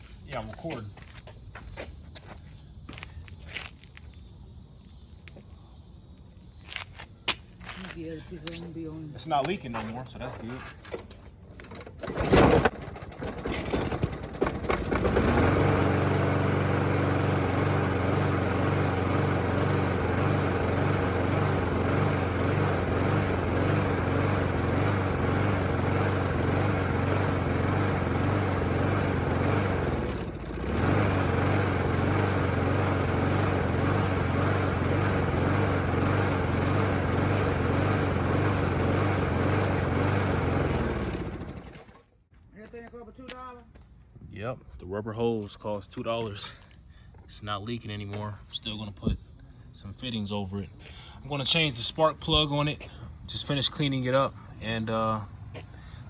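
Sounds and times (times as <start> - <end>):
lawn mower engine running: 11.5 - 42.1.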